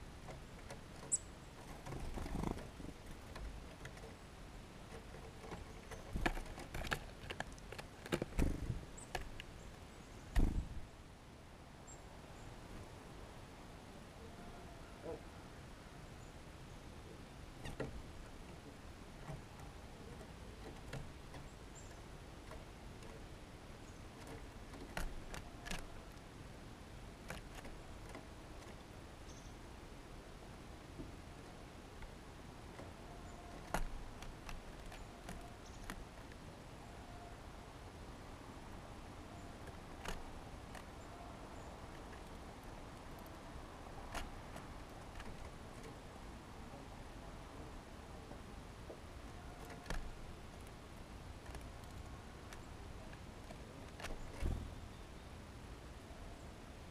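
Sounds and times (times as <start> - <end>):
faint steady hiss: 0.0 - 56.9
birds tapping and clicking: 0.1 - 10.9, 17.4 - 29.8, 30.4 - 37.0, 39.0 - 46.4, 48.3 - 55.0.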